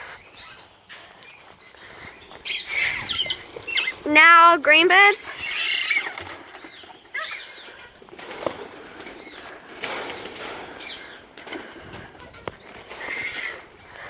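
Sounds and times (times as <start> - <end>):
bird chirps: 0.0 - 4.1
birds flapping wings: 1.6 - 14.0.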